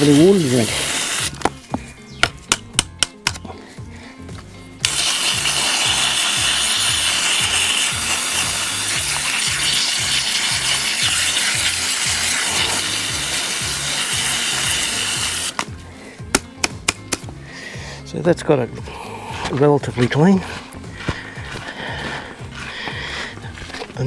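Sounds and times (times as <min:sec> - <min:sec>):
hose spraying onto mesh strainer: 0:00.0 - 0:01.4, 0:04.8 - 0:15.7.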